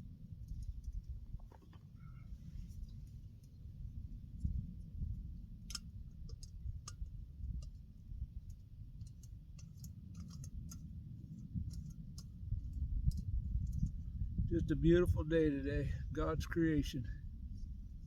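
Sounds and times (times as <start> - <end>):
low steady rumble: 0.0 - 18.0
cooking gear clicks and taps: 8.5 - 10.9.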